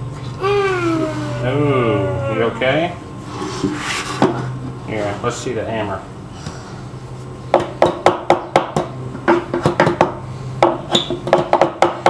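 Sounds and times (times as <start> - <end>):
hammer tapping nails into wood: 7.5 - 12.0.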